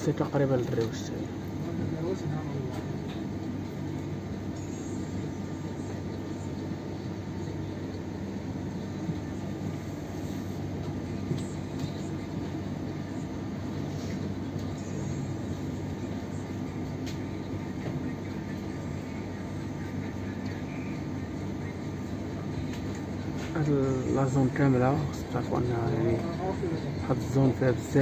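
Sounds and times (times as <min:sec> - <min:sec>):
passenger train running: 0:00.0 - 0:28.0.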